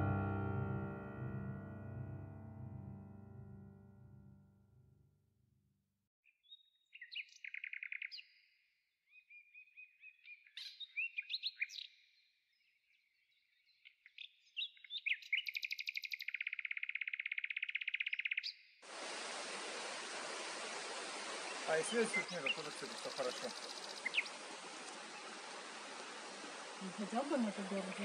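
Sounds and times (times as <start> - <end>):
songbird singing with trills: 6.4 - 8.4, 9.1 - 12.0, 13.7 - 18.6, 21.9 - 24.4.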